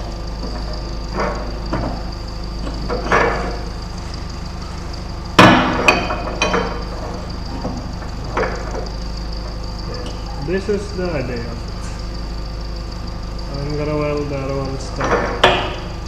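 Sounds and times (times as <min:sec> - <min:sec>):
hammer striking steel: 0:05.4 - 0:06.7.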